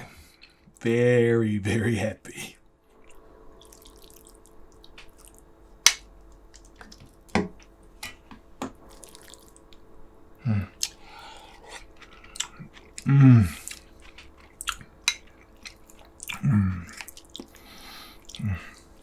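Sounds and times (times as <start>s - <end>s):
person humming mm: 10.4s - 10.8s, 13.0s - 13.7s, 16.4s - 16.9s, 18.4s - 18.8s.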